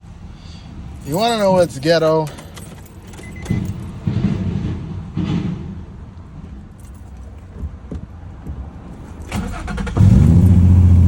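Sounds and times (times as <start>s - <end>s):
car engine idling: 6.0s - 11.0s
car engine starter cranking: 9.2s - 11.0s.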